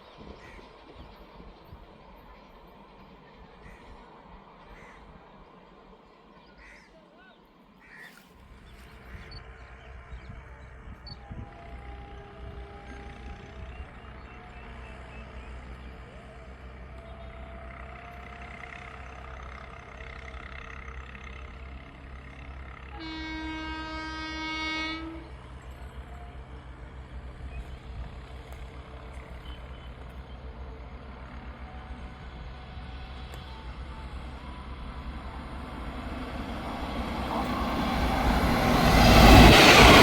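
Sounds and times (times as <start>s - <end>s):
locomotive horn blast: 22.9s - 25.6s.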